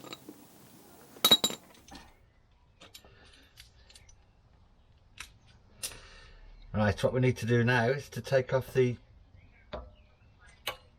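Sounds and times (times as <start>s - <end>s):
sharp metallic clanks: 1.2s - 1.9s
metal tools clicking and tapping: 1.2s - 2.0s.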